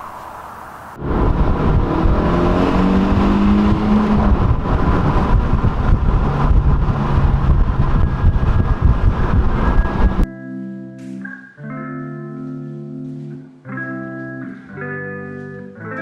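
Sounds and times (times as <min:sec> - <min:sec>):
heavy low rumble: 0:00.0 - 0:10.3
car engine accelerating: 0:01.0 - 0:10.3.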